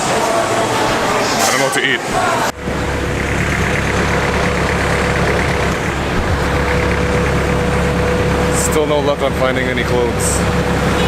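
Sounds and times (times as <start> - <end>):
vehicle engine running: 2.5 - 11.0.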